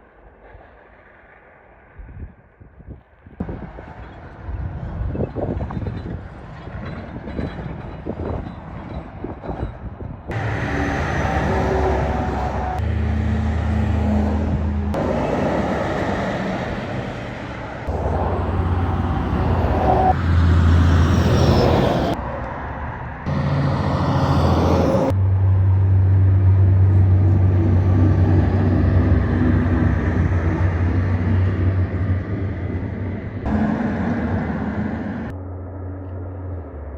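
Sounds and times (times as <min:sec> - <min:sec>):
trucks passing: 0:10.3 - 0:36.9.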